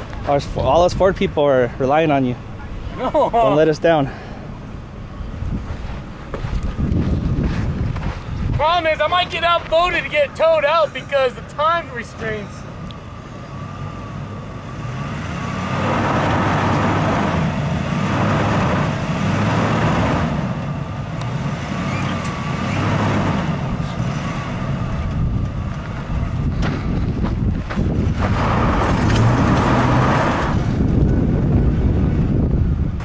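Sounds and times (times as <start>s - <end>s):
truck engine revving: 8.8s - 33.0s.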